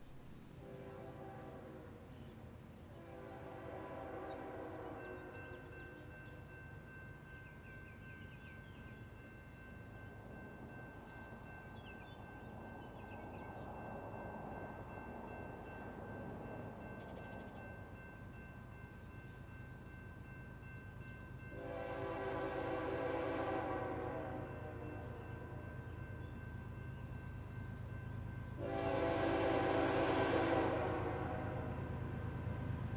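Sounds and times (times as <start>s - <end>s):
low rumble of train: 0.0s - 32.9s
locomotive horn blast: 0.6s - 2.0s, 2.9s - 5.4s, 21.5s - 25.6s, 28.6s - 31.8s.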